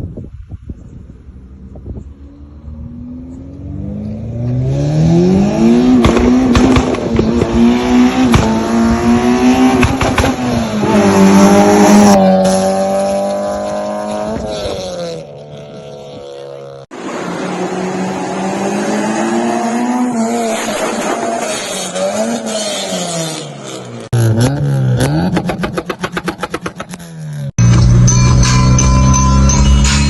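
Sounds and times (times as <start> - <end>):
car engine revving: 2.2 - 29.6
engine cracks: 25.0 - 27.2.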